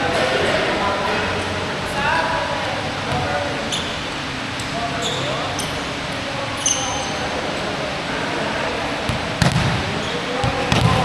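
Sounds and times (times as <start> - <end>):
room noise: 0.0 - 11.0
basketball bouncing on court floor: 9.1 - 11.0.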